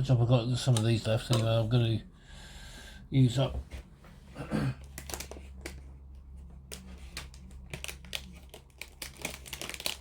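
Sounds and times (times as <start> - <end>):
materials crinkling: 4.8 - 10.0.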